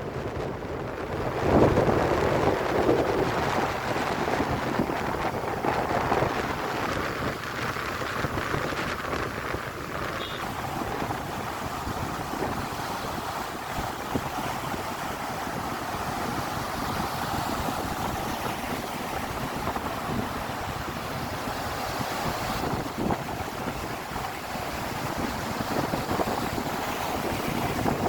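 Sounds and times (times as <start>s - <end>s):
waves washing: 0.0s - 28.0s
wind buffeting microphone: 0.0s - 28.0s.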